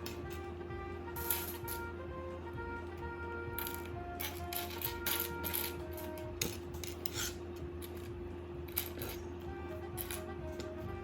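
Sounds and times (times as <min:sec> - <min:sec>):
background music with held tones: 0:00.0 - 0:11.0.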